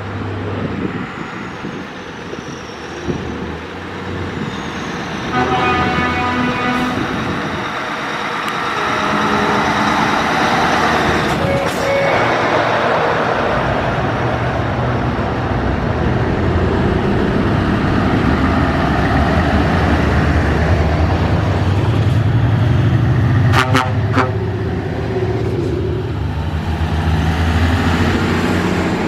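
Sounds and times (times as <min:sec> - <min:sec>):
road noise: 0:00.0 - 0:29.0
truck engines passing: 0:00.0 - 0:29.0
truck horn toots: 0:05.3 - 0:07.3, 0:08.6 - 0:13.8, 0:23.5 - 0:24.5.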